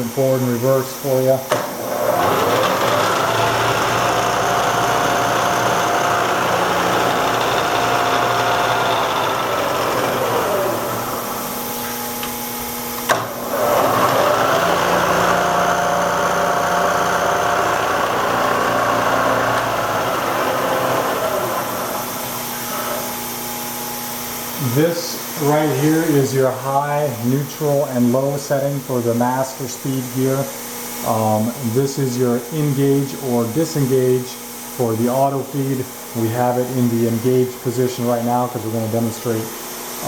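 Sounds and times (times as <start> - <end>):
mill spindle motor whining: 1.0 - 26.2.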